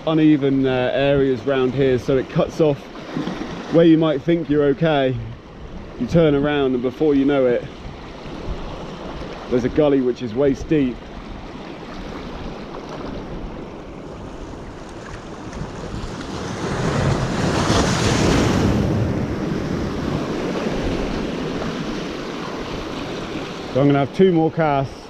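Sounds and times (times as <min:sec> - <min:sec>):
sea surf washing in: 0:01.3 - 0:24.9
wind buffeting microphone: 0:04.6 - 0:23.8.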